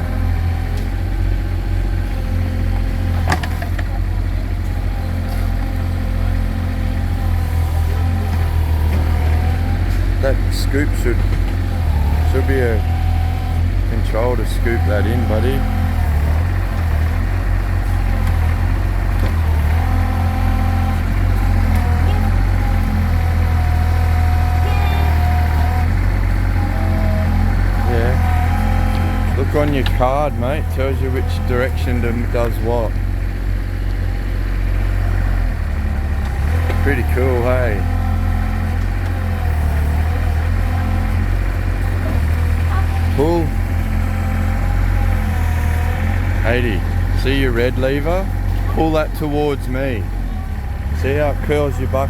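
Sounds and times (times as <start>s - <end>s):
excavator engine humming: 0.0s - 52.0s.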